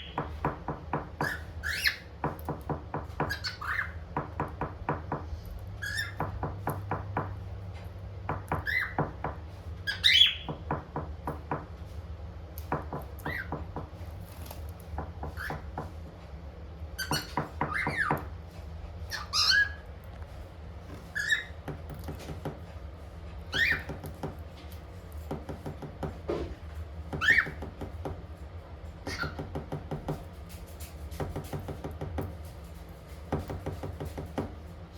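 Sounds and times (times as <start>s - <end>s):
cockatiel whistled chirps: 9.9s - 10.5s, 23.5s - 23.9s.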